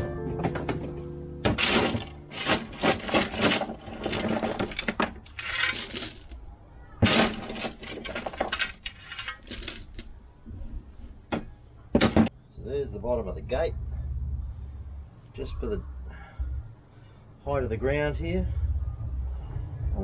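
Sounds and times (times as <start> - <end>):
scraping: 0.0 - 12.3
hard objects knocking and rattling: 0.3 - 6.4, 7.0 - 10.1, 11.2 - 12.3.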